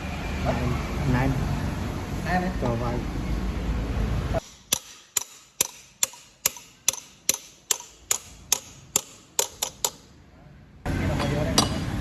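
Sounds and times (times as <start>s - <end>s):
hammer tapping metal: 4.4s - 10.1s, 11.2s - 12.0s.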